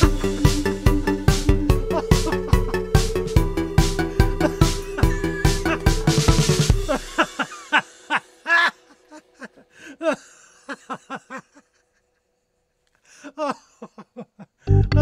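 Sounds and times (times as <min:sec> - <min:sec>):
person laughing in short bursts: 0:04.4 - 0:06.1, 0:06.8 - 0:11.7.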